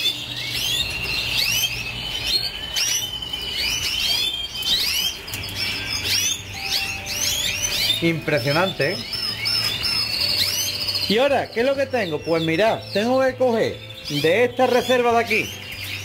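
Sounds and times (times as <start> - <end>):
canaries chirping: 0.0 - 16.0
canary trilling: 0.0 - 16.0.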